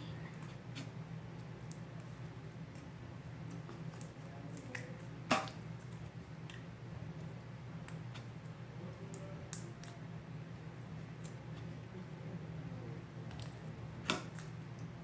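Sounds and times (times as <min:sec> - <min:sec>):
sharp slime pop: 0:05.3 - 0:05.6.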